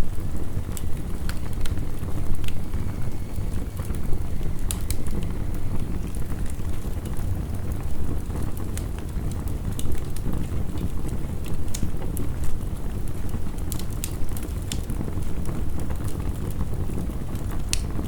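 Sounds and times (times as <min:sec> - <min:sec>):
heavy rain: 0:00.0 - 0:14.2
wood fire crackling: 0:00.0 - 0:18.0.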